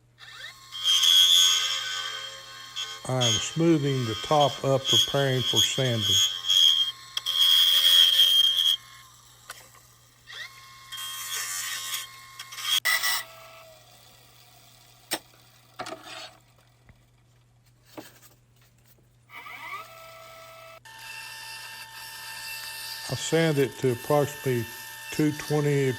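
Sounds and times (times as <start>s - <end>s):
lathe tool scraping wood: 0.3s - 13.0s, 15.8s - 16.5s, 19.4s - 25.9s.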